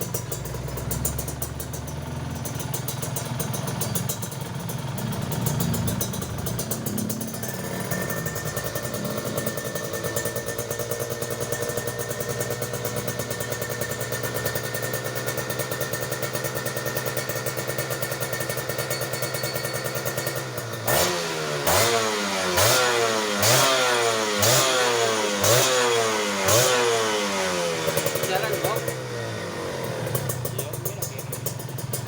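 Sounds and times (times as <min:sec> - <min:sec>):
motorcycle engine idling and revving: 0:00.0 - 0:32.0.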